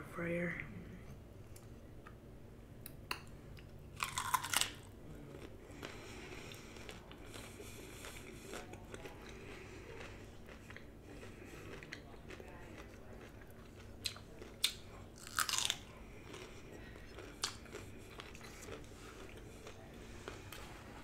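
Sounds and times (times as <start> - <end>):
person chewing: 2.8 - 21.0
person biting cauliflower crunch: 4.0 - 20.6.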